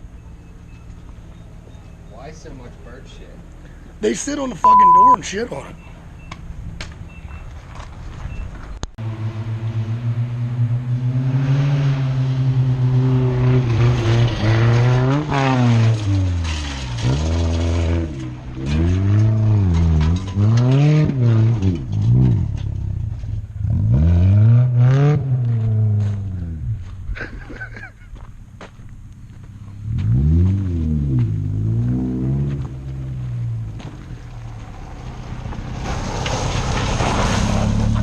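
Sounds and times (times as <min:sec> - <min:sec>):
car engine revving: 0:09.0 - 0:26.9, 0:29.5 - 0:38.0.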